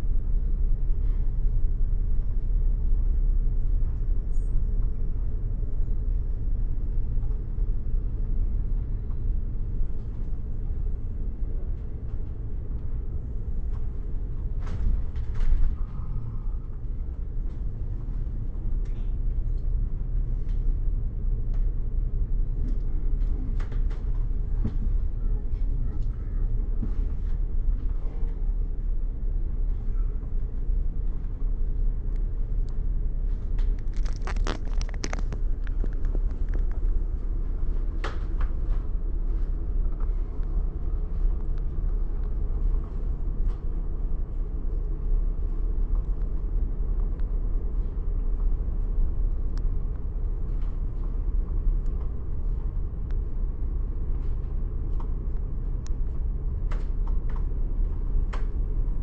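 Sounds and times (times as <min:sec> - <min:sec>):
bus rumble from inside: 0:00.0 - 0:59.0
sharp clicks and rattles: 0:33.6 - 0:36.9.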